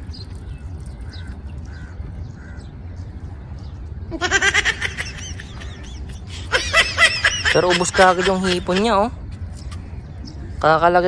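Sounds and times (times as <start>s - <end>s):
steady low rumble: 0.0s - 11.0s
birds cawing: 0.4s - 3.0s, 4.2s - 9.1s.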